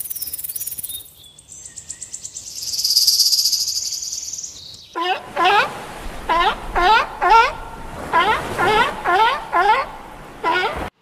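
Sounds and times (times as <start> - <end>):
rattlesnake tail rattle buzz: 2.6 - 4.5.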